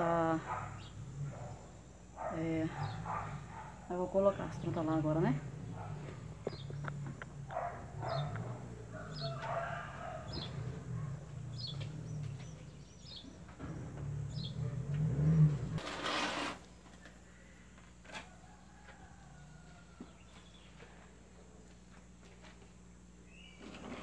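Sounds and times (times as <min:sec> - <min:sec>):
handling noise rumble: 0:00.0 - 0:16.8
small bird chirping: 0:05.8 - 0:14.8.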